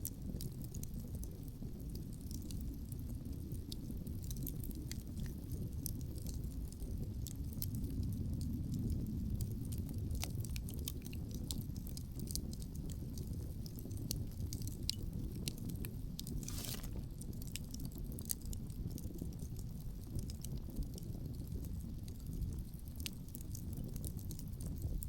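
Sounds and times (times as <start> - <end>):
campfire crackling and popping: 0.0 - 25.0
low rumble of wind: 0.0 - 25.0
short hiss: 16.4 - 17.1.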